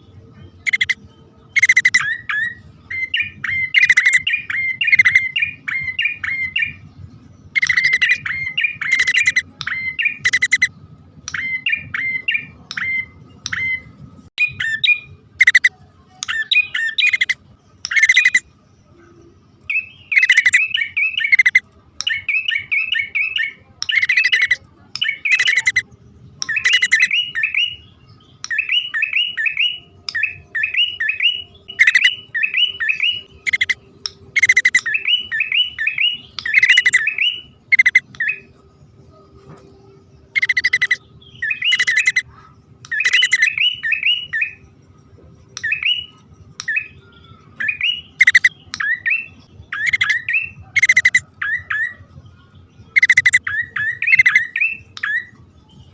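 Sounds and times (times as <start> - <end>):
harsh bird calls: 0.0 - 10.7, 11.3 - 38.6, 40.2 - 44.7, 45.6 - 55.9
birds chirping: 0.0 - 55.9.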